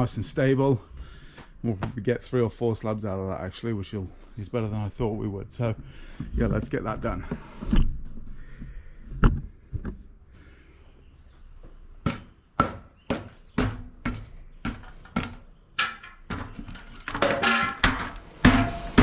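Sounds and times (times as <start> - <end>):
sharp ringing knocks: 17.2 - 19.0.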